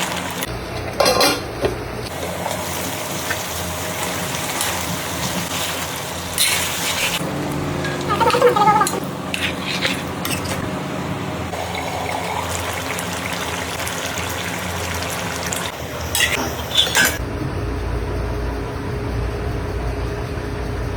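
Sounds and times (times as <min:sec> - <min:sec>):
metal utensils clinking on pot: 0:01.0 - 0:01.4, 0:07.8 - 0:10.7, 0:16.1 - 0:17.2
liquid poured or stirred in pot: 0:11.5 - 0:17.2.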